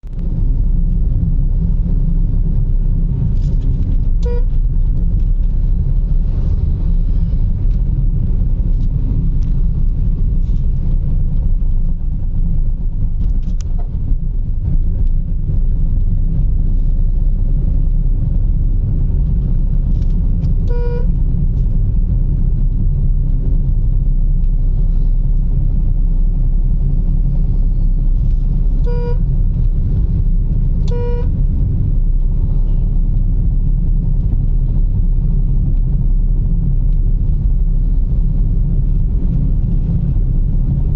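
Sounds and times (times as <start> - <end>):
vehicle rumbling: 0.0 - 40.9
horn toots: 4.2 - 4.7, 20.6 - 21.2, 28.8 - 29.3, 30.8 - 31.4.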